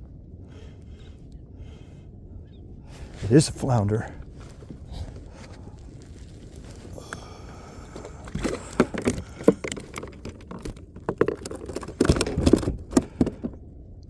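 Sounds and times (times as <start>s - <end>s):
knocks and rattles against hull: 3.1s - 13.6s.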